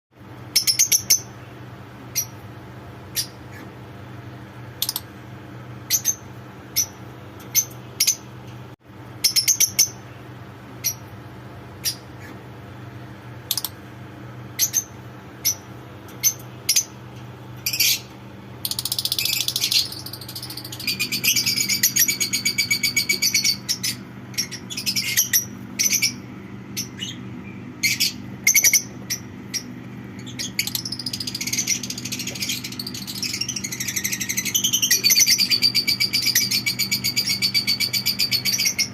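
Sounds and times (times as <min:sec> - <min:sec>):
chicks chirping: 0:18.7 - 0:38.9.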